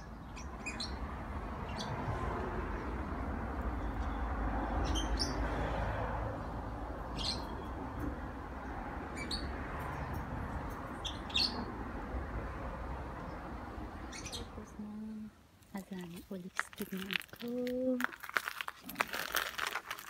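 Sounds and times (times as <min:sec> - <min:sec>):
small birds chirping: 0:00.0 - 0:01.0, 0:07.1 - 0:07.8, 0:11.0 - 0:11.7, 0:13.2 - 0:20.0.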